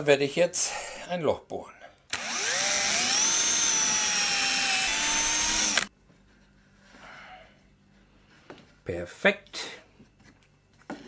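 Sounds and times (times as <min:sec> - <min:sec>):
power drill whining: 0:02.1 - 0:05.9.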